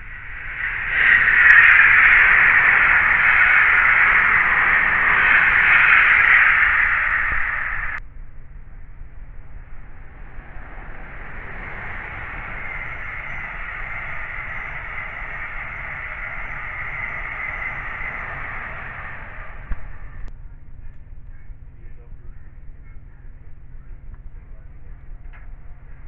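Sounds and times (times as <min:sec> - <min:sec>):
train passing at speed: 0:00.0 - 0:08.0, 0:09.1 - 0:20.3.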